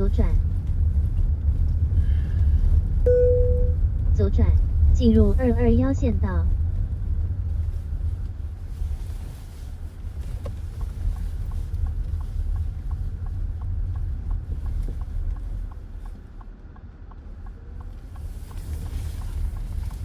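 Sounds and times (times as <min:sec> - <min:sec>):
car cabin road noise: 0:00.0 - 0:20.0
turn signal ticking: 0:02.6 - 0:08.4, 0:09.8 - 0:20.0.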